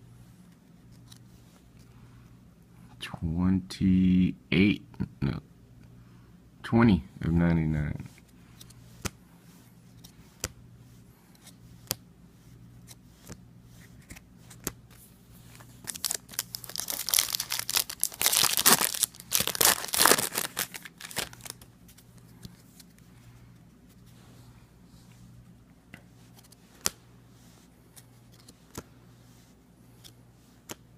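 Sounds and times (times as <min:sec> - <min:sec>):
card pack wrapper tearing and crinkling: 0:15.7 - 0:21.6
cards clicking and tapping: 0:30.0 - 0:30.8.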